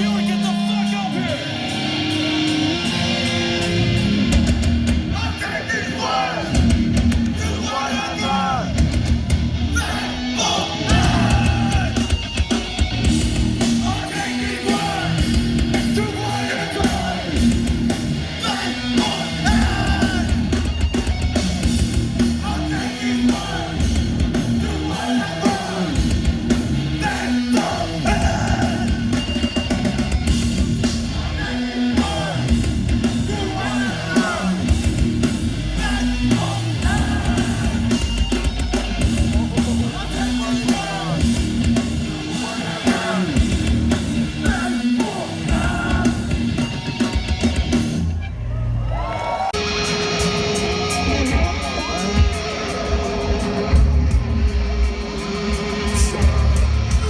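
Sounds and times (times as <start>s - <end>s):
bass: 0.0s - 57.0s
distorted guitars: 0.0s - 57.0s
drums: 0.0s - 57.0s
shouted vocals: 5.1s - 8.8s, 9.6s - 12.2s, 13.7s - 17.6s, 18.2s - 20.7s, 22.3s - 29.3s, 31.0s - 35.0s, 35.6s - 38.4s, 39.2s - 46.6s, 48.1s - 53.8s.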